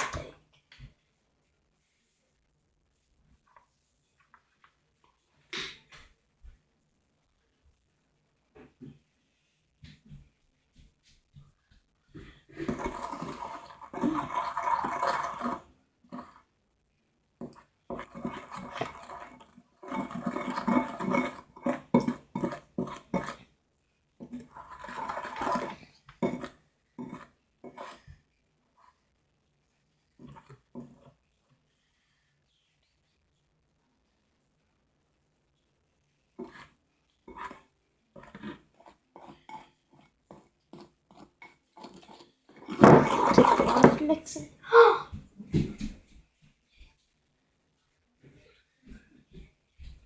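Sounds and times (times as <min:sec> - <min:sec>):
slime being stirred: 0:00.0 - 0:00.4, 0:12.2 - 0:16.6, 0:17.4 - 0:29.0, 0:29.9 - 0:33.1, 0:36.3 - 0:44.4.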